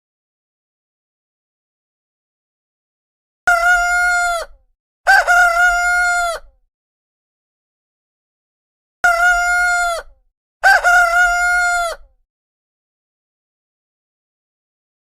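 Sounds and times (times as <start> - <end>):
rooster crowing: 10.6 - 12.0.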